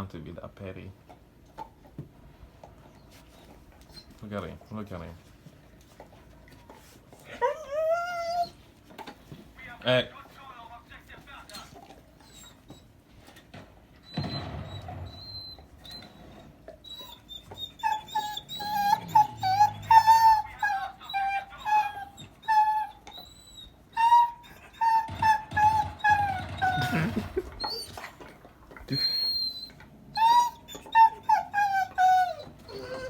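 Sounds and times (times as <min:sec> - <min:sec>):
dog whimpering: 0:07.2 - 0:08.8, 0:11.5 - 0:13.1, 0:14.0 - 0:33.0
dog rough vocal sounds: 0:16.9 - 0:22.2.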